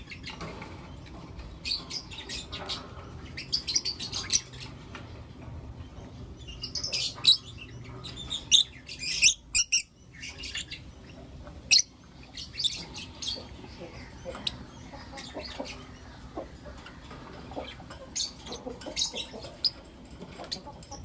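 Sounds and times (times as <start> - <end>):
lovebirds chirping shrilly: 6.4 - 16.2.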